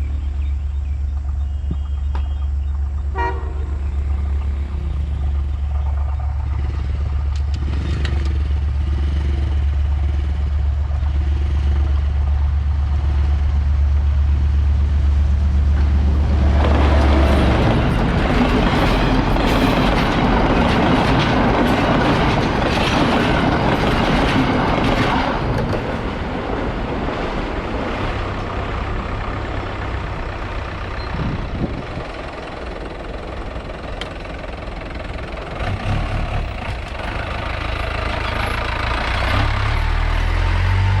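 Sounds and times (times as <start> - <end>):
diesel engine running: 0.0 - 41.0
heavy vehicle rushing past: 25.4 - 41.0.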